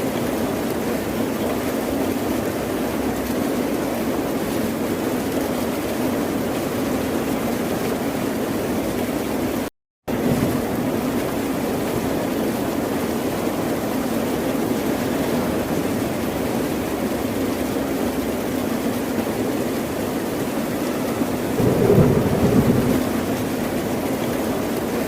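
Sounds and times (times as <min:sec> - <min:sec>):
ocean surf: 0:21.2 - 0:24.0.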